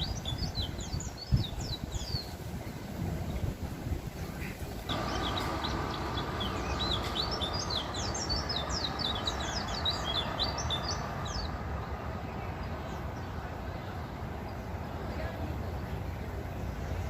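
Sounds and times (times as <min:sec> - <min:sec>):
steady background noise: 0:00.0 - 0:17.0
small bird twittering: 0:04.4 - 0:11.6.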